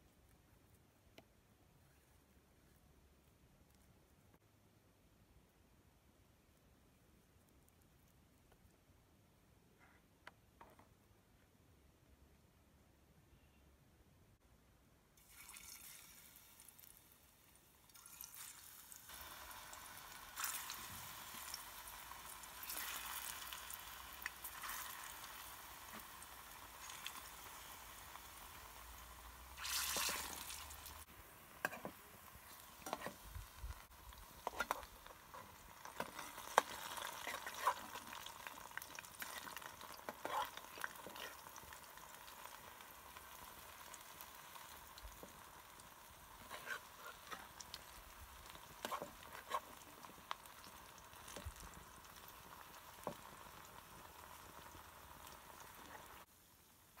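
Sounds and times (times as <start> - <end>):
plantain sizzling in oil: 15.2 - 57.0.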